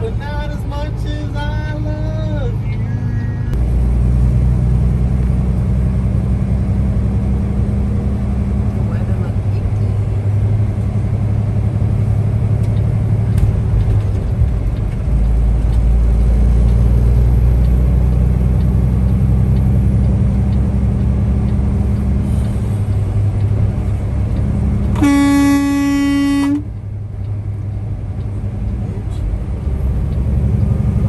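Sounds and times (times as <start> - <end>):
diesel truck engine droning: 0.0 - 31.0
vehicle horn: 24.9 - 26.7.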